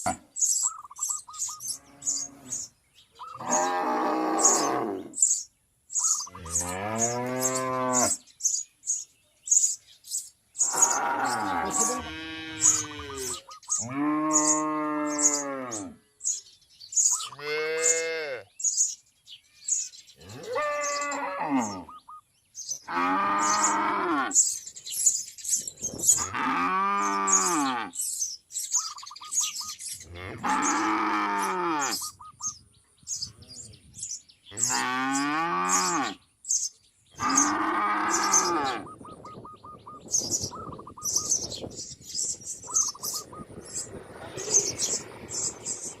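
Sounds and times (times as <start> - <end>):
high bird chirps: 0.4 - 3.7, 4.4 - 12.0, 12.6 - 18.0, 18.6 - 23.8, 27.1 - 30.9, 31.9 - 46.0
long low moo-like calls: 3.3 - 5.2, 10.6 - 16.0, 20.2 - 21.9, 22.8 - 24.4, 30.0 - 32.2, 34.5 - 36.2, 37.2 - 39.0.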